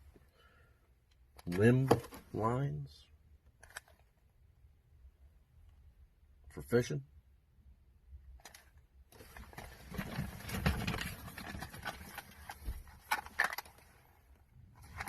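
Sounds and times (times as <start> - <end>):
packaging rustling: 9.2 - 14.0.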